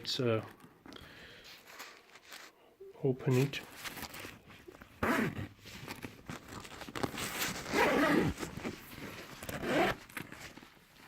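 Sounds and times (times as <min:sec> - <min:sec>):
bag handling noise: 0:03.3 - 0:11.0
zipper being pulled open: 0:05.0 - 0:06.1, 0:07.0 - 0:10.6.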